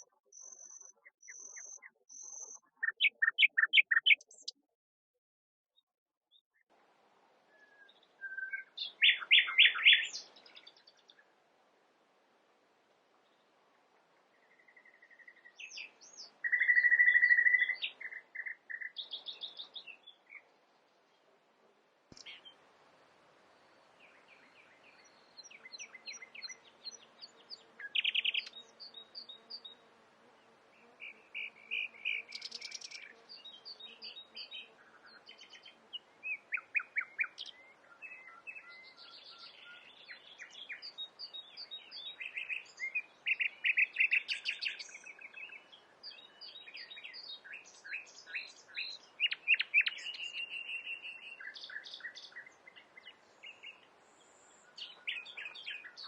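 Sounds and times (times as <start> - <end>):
nightingale singing: 0.0 - 4.6, 7.5 - 11.2, 14.4 - 20.5, 24.0 - 29.7, 31.0 - 56.0.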